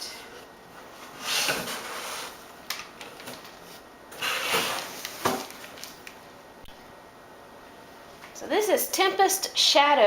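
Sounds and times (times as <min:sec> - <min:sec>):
packaging rustling: 0:01.5 - 0:06.3.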